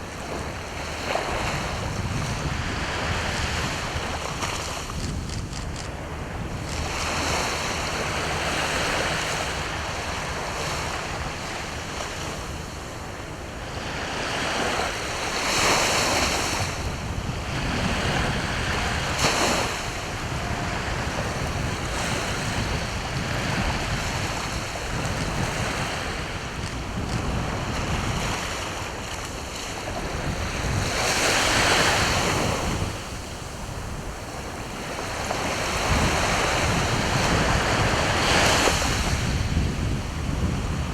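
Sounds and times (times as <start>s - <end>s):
sea waves breaking: 0.0s - 40.9s
wind rumbling on microphone: 0.0s - 40.9s.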